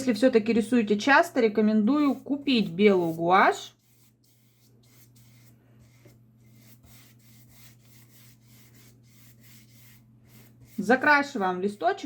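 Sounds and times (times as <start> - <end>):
low electrical hum: 0.0 - 12.0
paintbrush scratchy strokes on paper: 2.0 - 12.0.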